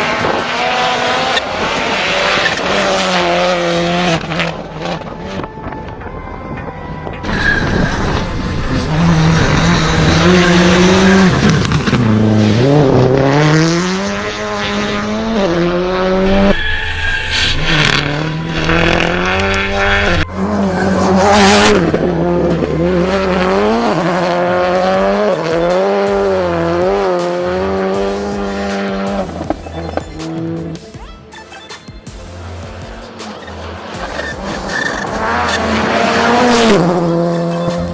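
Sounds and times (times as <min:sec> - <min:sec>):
car engines revving: 0:00.0 - 0:37.9
tyre squeal: 0:07.2 - 0:12.8, 0:16.1 - 0:24.5, 0:29.3 - 0:32.2, 0:33.3 - 0:37.9.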